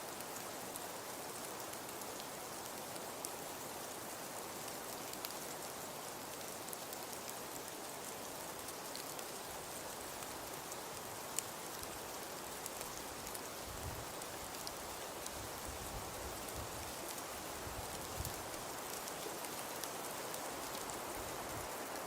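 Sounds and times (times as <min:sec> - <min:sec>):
wood fire crackling: 0:04.5 - 0:22.0.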